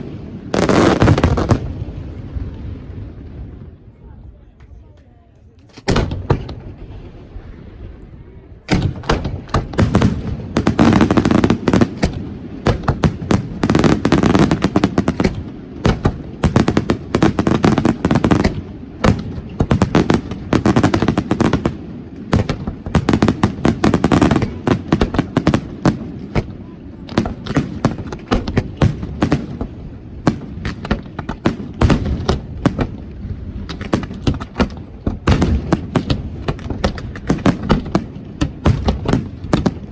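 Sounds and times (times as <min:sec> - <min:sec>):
fireworks banging and crackling: 0:00.0 - 0:03.8, 0:04.6 - 0:39.9.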